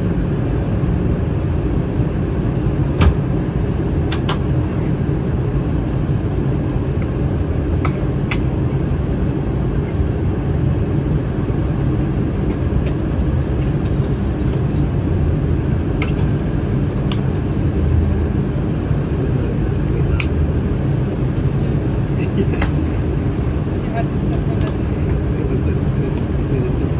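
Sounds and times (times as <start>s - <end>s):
airplane cabin rumble: 0.0s - 26.9s.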